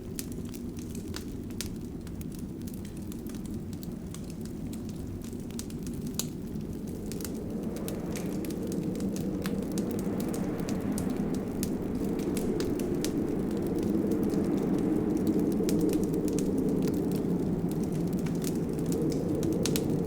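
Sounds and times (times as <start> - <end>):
fire crackling and popping: 0.0 - 20.0
low rush of flames: 0.0 - 20.0.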